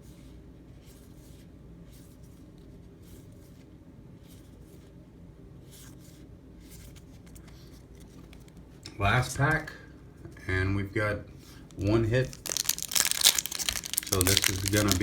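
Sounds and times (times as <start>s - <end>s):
low room hum: 0.0s - 15.0s
paper cards rustling: 6.7s - 8.6s, 11.7s - 15.0s.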